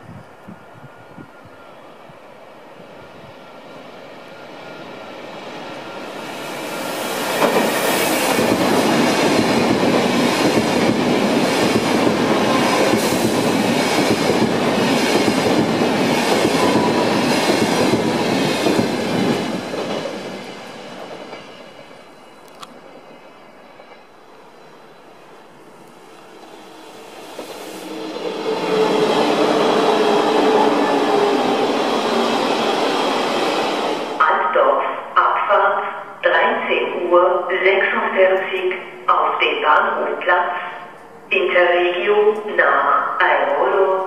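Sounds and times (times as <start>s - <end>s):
rush of train wheels on rail: 4.4s - 24.5s, 25.4s - 34.2s.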